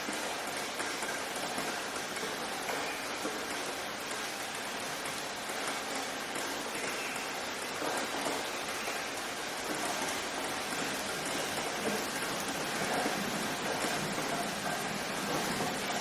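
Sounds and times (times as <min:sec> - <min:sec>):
rain pattering on surfaces: 0:00.0 - 0:16.0.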